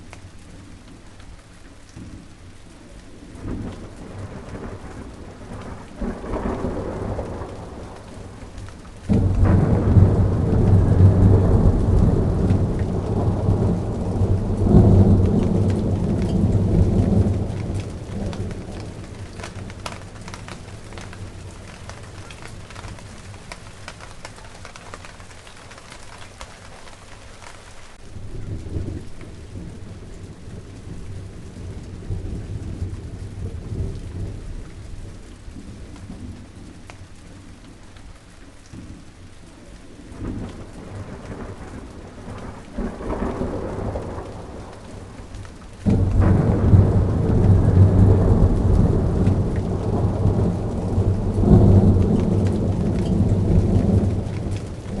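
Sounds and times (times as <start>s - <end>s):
rain falling on plants: 0.0s - 55.0s
thunder rolling: 3.4s - 25.2s, 28.1s - 36.5s, 40.1s - 55.0s.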